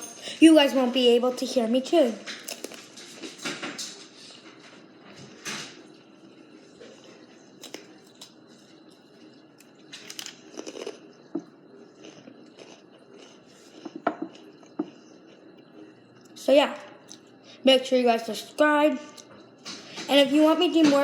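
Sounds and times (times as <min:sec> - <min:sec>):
person chewing crunchy pretzel: 0:09.5 - 0:16.3.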